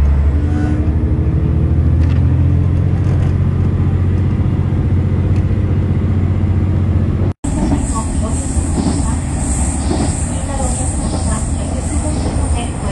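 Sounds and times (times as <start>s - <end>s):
diesel railcar engine hum: 0.0s - 12.9s.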